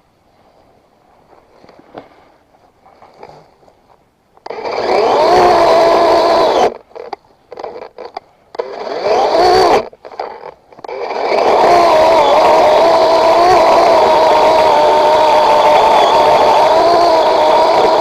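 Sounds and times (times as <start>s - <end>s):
chainsaw revving: 4.4s - 18.0s.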